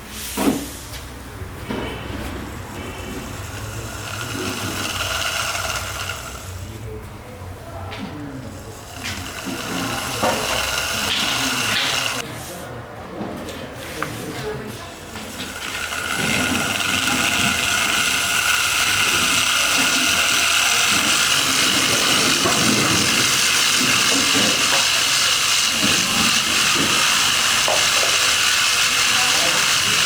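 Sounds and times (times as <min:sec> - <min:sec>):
angle grinder whining: 0:02.5 - 0:06.8, 0:08.4 - 0:12.2, 0:14.9 - 0:30.0.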